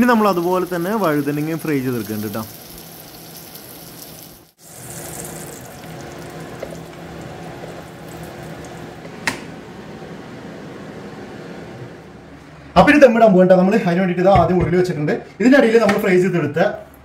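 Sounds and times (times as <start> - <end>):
eggplant sizzling in oil: 0.0 - 9.0.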